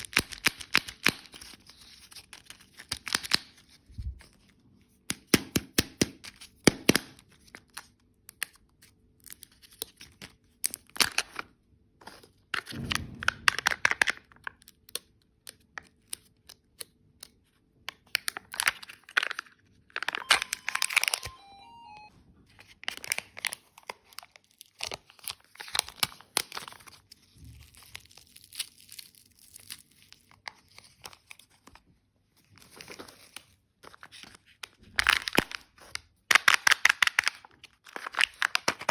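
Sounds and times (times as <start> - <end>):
plastic wrappers crinkling: 32.4 - 38.9.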